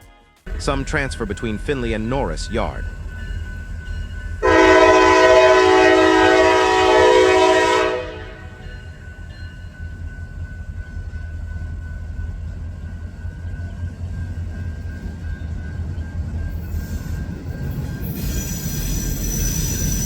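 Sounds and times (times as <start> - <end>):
train low rumble: 0.5 - 20.0
locomotive air horn blast: 4.4 - 8.6.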